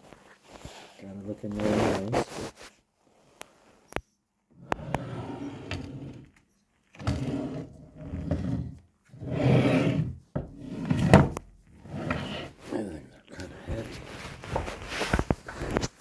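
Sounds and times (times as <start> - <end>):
scrapes and rubs on hard surface: 0.0 - 3.7, 4.6 - 6.4, 7.0 - 16.0.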